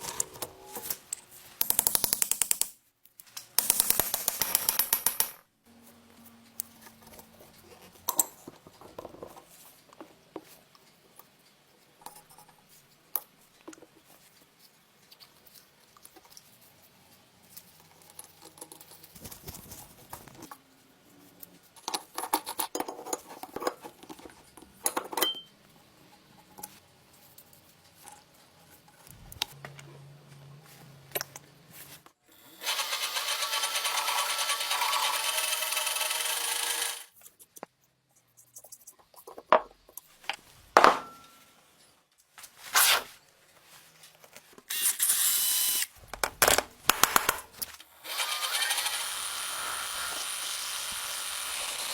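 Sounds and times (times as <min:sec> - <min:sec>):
metal parts and tools clicking: 0:03.4 - 0:05.4.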